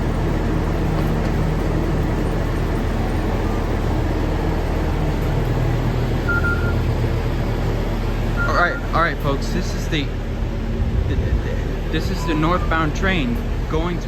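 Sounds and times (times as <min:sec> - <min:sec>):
train engines idling: 0:00.0 - 0:14.0
short high electronic beep: 0:06.3 - 0:06.8.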